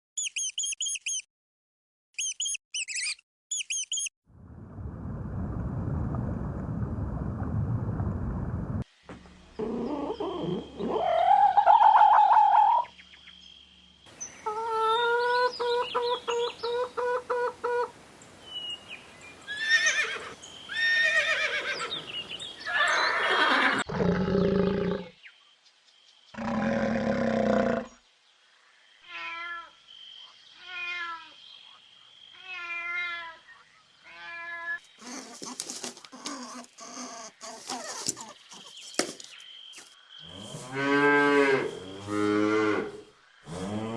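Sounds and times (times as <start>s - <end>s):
animal calls: 9.6s - 12.9s.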